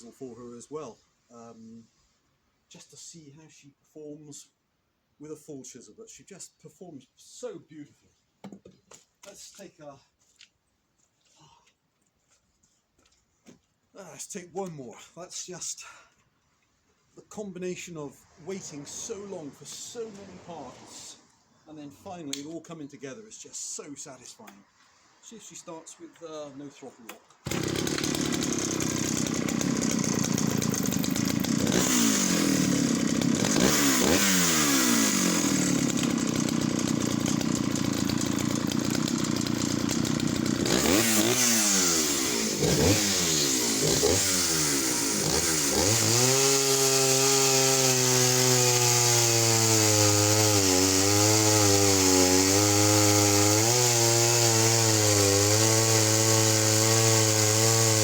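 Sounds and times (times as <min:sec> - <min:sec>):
two-stroke chainsaw revving: 0:27.4 - 0:58.0.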